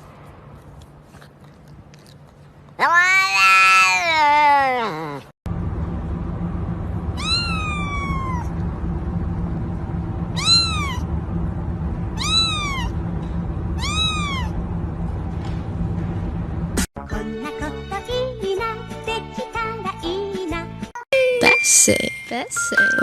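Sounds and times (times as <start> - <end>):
cat meowing: 2.8 - 5.3, 7.2 - 8.5, 10.3 - 11.1, 12.2 - 13.0, 13.8 - 14.6.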